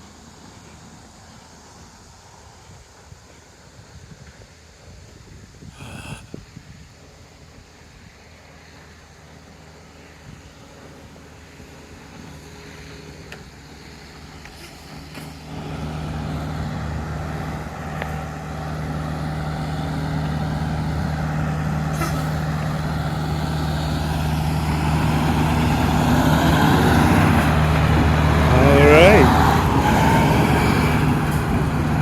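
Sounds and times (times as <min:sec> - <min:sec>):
road traffic: 0:00.0 - 0:32.0
vehicle engine humming: 0:08.4 - 0:32.0.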